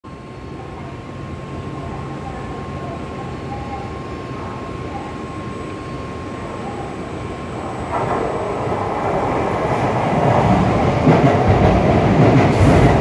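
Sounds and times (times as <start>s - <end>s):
train rumbling slowly: 0.1s - 13.0s.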